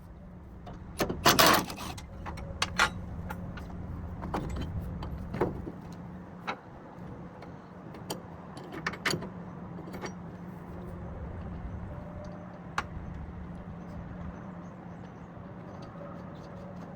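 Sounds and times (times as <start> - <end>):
sharp metallic clicks and knocks: 0.7 - 6.7.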